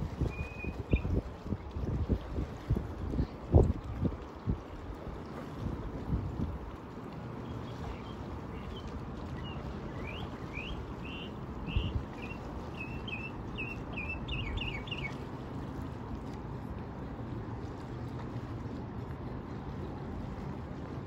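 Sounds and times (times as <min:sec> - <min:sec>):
songbird chirping: 0:07.4 - 0:15.2.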